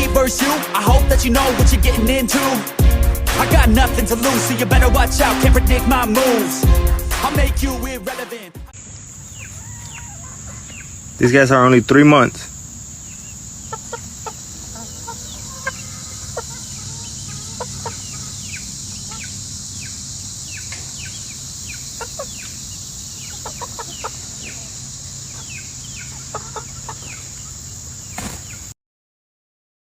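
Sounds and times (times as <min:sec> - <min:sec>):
steady high hiss: 0:00.0 - 0:09.5
chickens clucking and peeping: 0:08.8 - 0:28.7.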